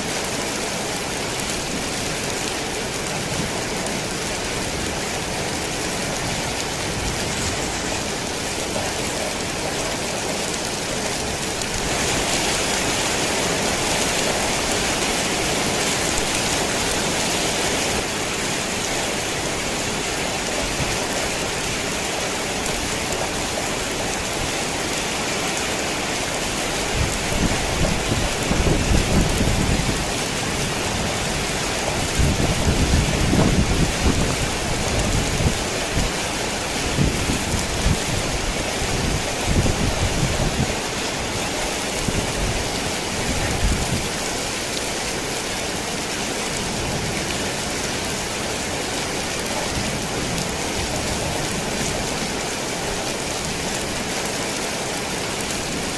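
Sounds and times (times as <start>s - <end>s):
heavy rain on a tin roof: 0.0s - 55.9s
thunder rumbling: 26.8s - 40.8s.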